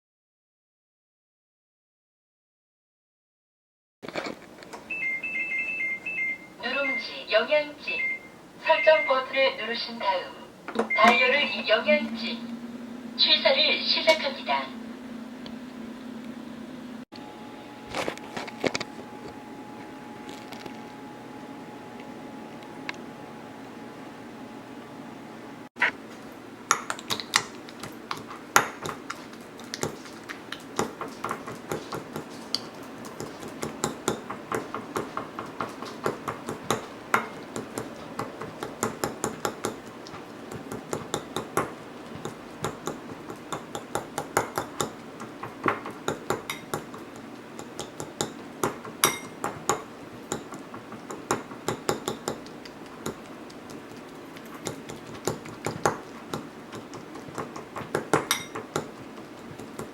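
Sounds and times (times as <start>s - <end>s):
utensil clinking against dishes: 49.0s - 52.4s, 58.2s - 59.6s.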